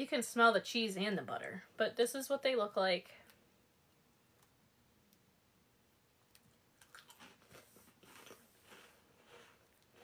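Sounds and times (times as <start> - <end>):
person chewing crisp cracker: 6.3 - 10.0.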